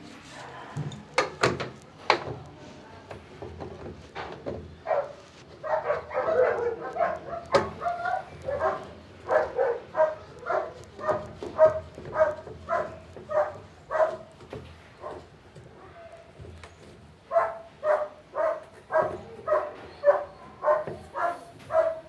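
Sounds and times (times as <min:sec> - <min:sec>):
dog barking: 0:04.8 - 0:14.3, 0:15.0 - 0:16.2, 0:17.3 - 0:22.0.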